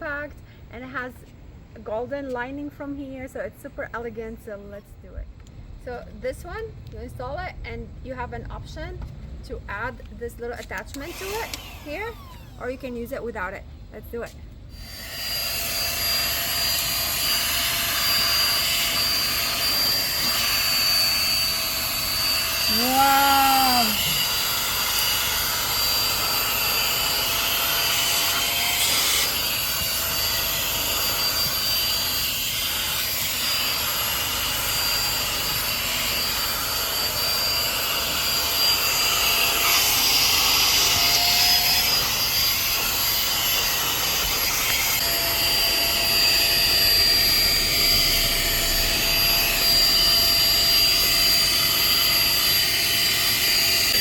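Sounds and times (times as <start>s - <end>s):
handheld vacuum cleaner whining: 10.8s - 13.0s, 14.7s - 54.0s.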